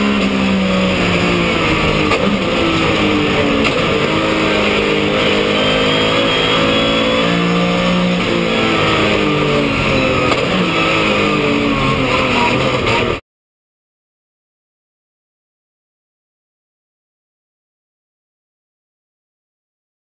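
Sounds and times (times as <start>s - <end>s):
car engine accelerating hard: 0.0s - 13.2s.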